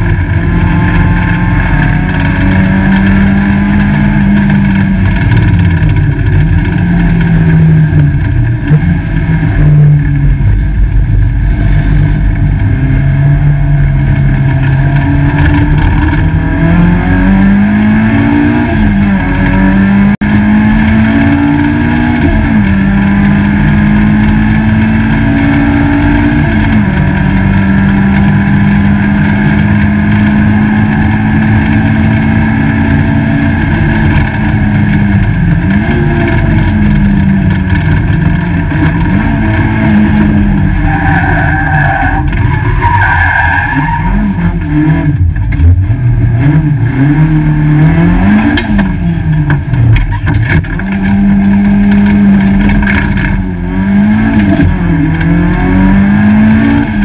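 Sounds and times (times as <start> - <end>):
race car engine revving: 0.0 - 57.0
road noise rumble: 0.0 - 57.0.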